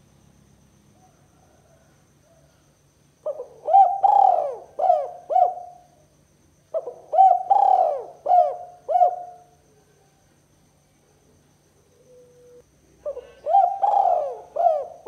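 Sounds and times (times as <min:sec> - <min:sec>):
dove cooing: 0:03.2 - 0:05.9, 0:06.7 - 0:10.1, 0:12.0 - 0:15.0.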